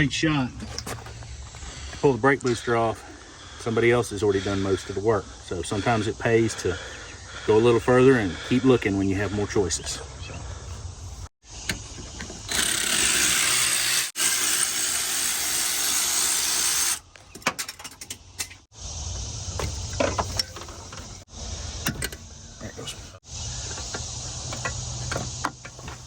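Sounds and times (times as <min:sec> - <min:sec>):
power tool running: 0:12.5 - 0:17.0.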